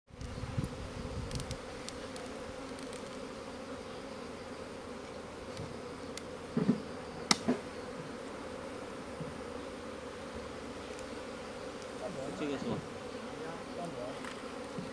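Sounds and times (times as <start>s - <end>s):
honeybees buzzing: 0.1s - 14.9s
sharp click: 7.3s - 7.6s.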